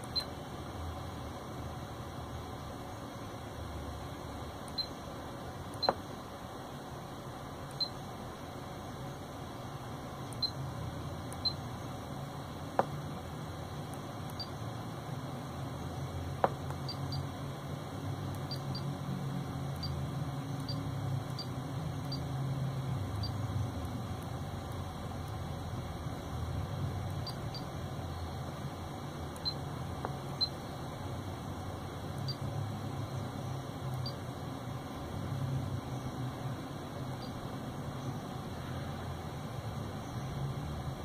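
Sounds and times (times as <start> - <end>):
low steady hum: 0.0 - 41.0
stylus tapping screen: 5.7 - 6.1, 12.7 - 13.0, 16.3 - 17.2.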